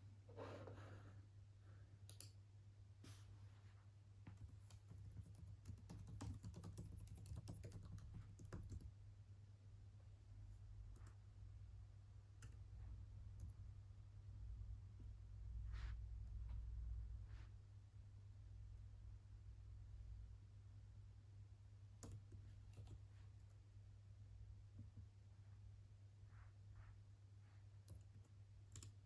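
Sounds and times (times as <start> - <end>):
faint keyboard typing: 2.0 - 2.4, 4.2 - 9.0, 10.5 - 11.2, 12.3 - 13.6, 22.0 - 23.6, 27.8 - 29.0.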